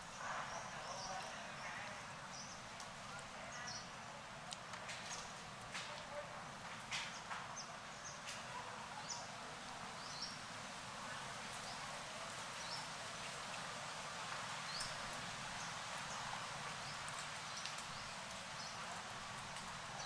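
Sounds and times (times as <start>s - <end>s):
steady hiss: 9.7s - 20.0s
faint clicks: 17.1s - 18.4s.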